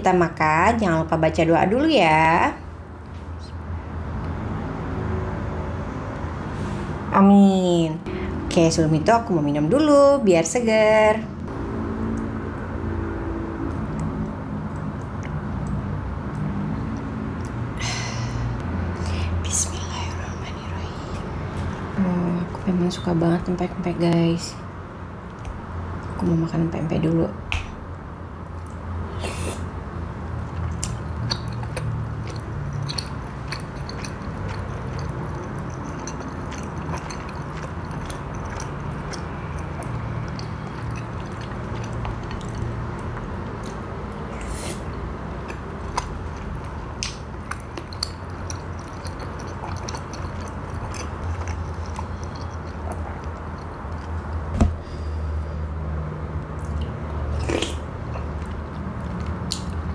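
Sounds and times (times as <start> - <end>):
chewing with wet mouth sounds: 13.6 - 17.8, 30.2 - 54.5, 55.7 - 59.9.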